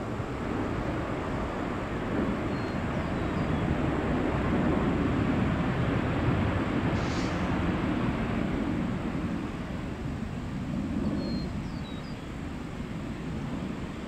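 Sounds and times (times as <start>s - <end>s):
jet airliner roar: 0.0s - 14.0s
faint bird chirps: 2.5s - 3.6s, 11.0s - 12.3s.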